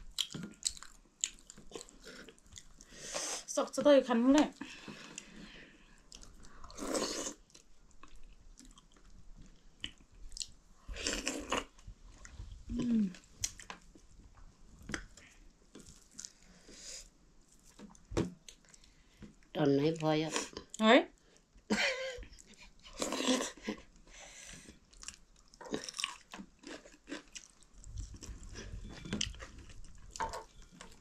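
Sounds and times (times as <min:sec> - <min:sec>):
chewing and lip smacking: 0:00.1 - 0:02.8, 0:24.9 - 0:31.0.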